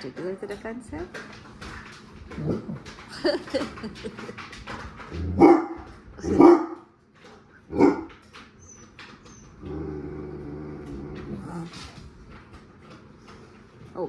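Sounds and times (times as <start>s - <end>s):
dog growling: 2.3s - 4.3s, 5.0s - 6.8s, 9.3s - 12.2s
dog barking: 5.4s - 6.9s, 7.7s - 8.1s.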